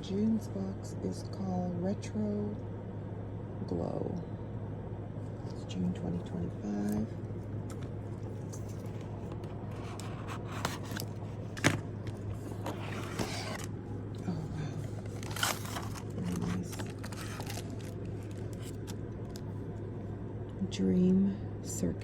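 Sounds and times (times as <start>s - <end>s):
steady low hum: 0.0s - 22.0s
packaging rustling and scraping: 7.7s - 13.7s, 14.7s - 19.4s.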